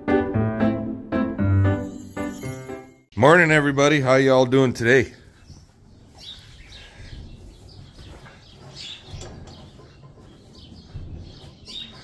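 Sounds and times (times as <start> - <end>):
small birds chirping: 5.0 - 12.0.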